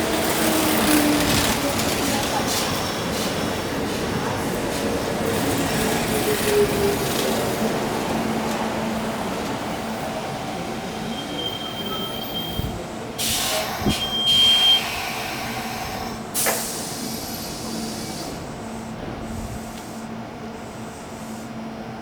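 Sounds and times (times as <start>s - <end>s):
electric train humming: 0.0s - 12.0s.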